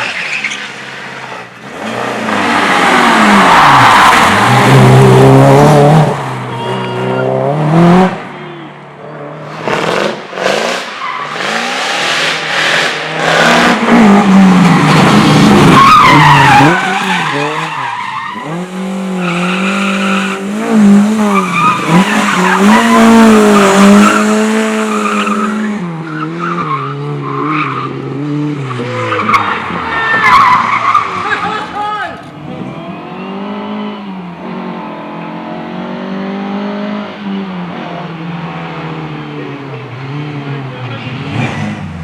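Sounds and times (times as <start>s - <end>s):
tyres skidding: 0.0s - 42.0s
car engine revving hard: 1.0s - 8.2s, 9.4s - 26.1s, 32.2s - 42.0s.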